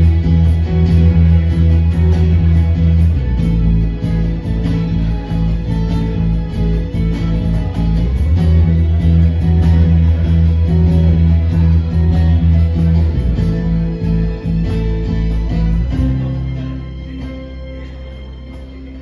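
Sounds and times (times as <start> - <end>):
live band music led by guitar: 0.0 - 19.0
strong bass line: 0.0 - 19.0.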